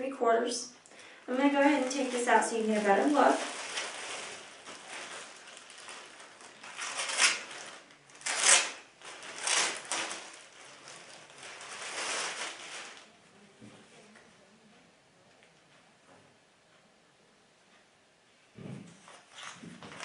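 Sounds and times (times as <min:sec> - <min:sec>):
packaging rustling and crinkling: 0:01.3 - 0:13.1, 0:19.1 - 0:20.0.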